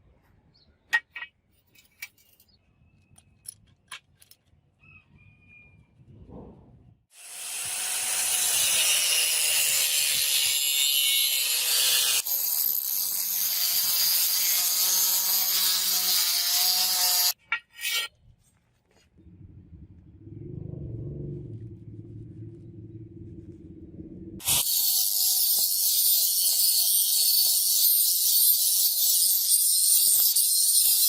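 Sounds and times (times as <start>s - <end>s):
power tool grinding metal: 7.2s - 18.0s, 24.4s - 31.0s.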